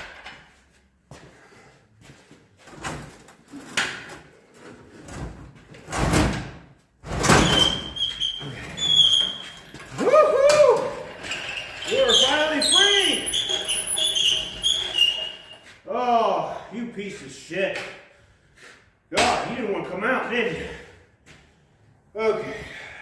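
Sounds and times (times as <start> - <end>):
steady high squeal: 7.4 - 15.8.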